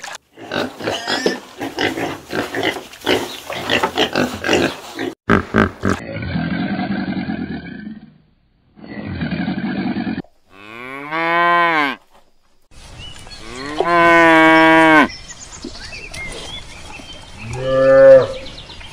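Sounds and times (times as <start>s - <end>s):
cattle mooing: 8.8s - 12.0s.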